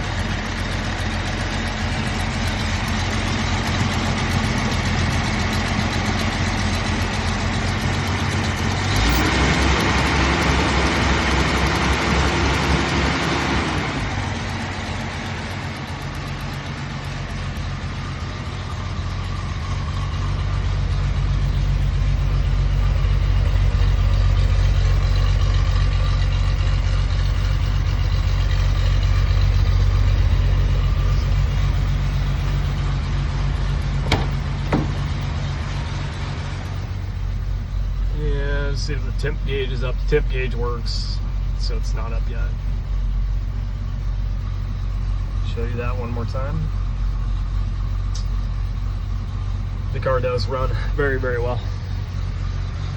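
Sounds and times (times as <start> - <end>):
car engine idling and revving: 0.0 - 52.9
sharp click: 48.1 - 48.4.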